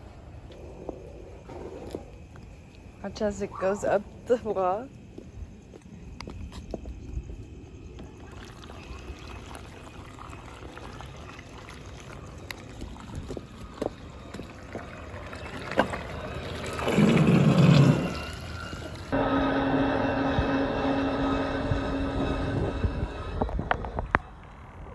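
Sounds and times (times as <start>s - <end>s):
water trickling and sloshing: 6.8s - 19.2s
water rush: 8.2s - 23.5s
steady hum: 14.0s - 24.9s.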